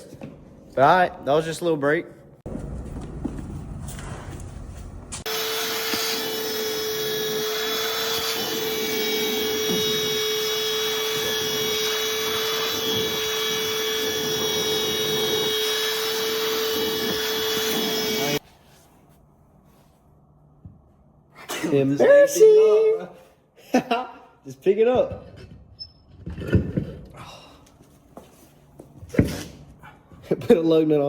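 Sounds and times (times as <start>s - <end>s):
vacuum cleaner running: 5.3s - 18.4s.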